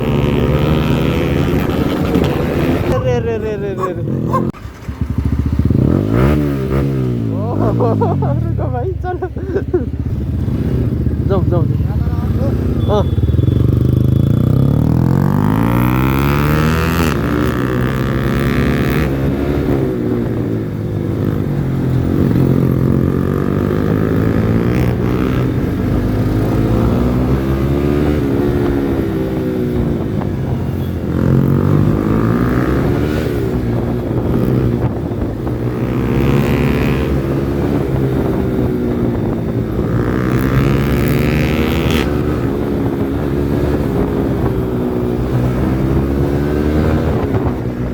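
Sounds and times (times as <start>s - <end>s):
motorcycle engine revving: 0.0s - 8.6s, 9.9s - 47.9s.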